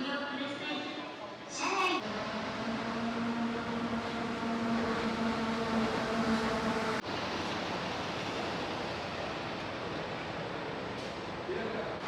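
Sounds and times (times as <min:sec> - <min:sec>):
vehicle humming tone: 0:02.0 - 0:07.0.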